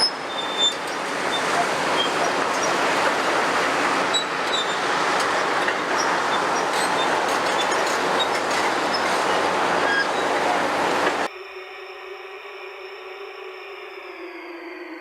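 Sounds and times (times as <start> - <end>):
demolition machinery grinding: 0.0 - 11.3
high metallic squeaks: 0.0 - 11.3.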